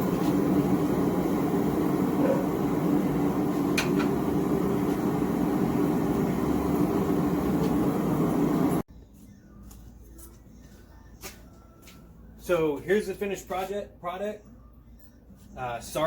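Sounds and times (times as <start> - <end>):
gas burner rushing: 0.0 - 8.8.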